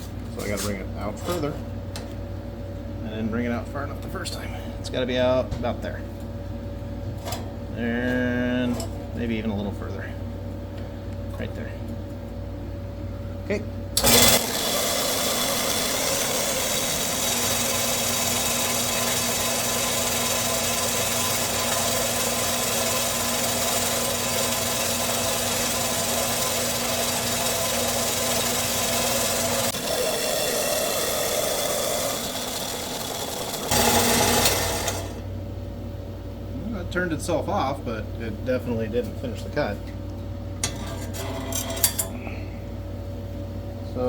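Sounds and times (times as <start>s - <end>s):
band saw cutting metal: 14.0s - 35.2s, 40.6s - 42.1s.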